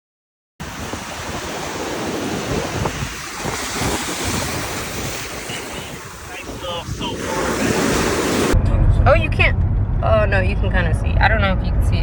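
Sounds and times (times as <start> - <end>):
ocean surf washing: 0.6 - 8.6
wind buffeting microphone: 0.6 - 12.0.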